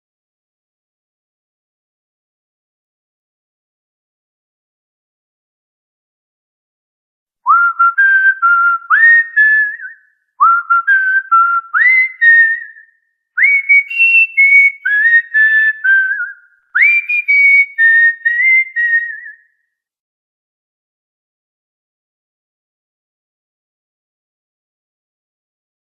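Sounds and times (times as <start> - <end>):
cockatiel whistling a tune: 7.5 - 19.5.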